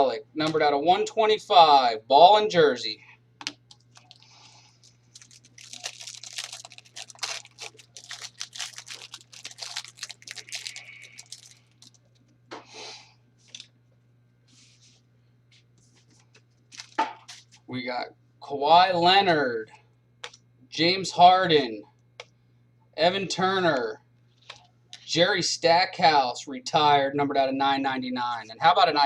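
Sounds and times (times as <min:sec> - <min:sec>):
foil wrappers crinkling and tearing: 0:03.7 - 0:12.3, 0:13.4 - 0:13.7, 0:16.3 - 0:17.6.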